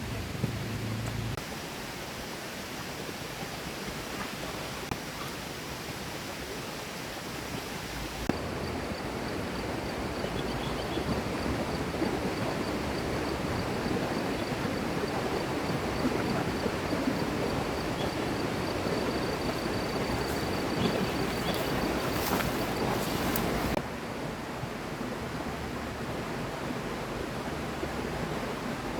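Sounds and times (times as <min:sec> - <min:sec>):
river flowing: 0:00.0 - 0:28.9.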